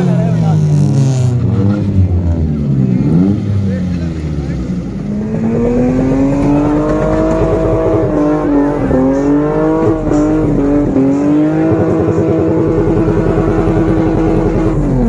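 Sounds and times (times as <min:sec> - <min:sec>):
car engine at high revs: 0:00.0 - 0:15.0.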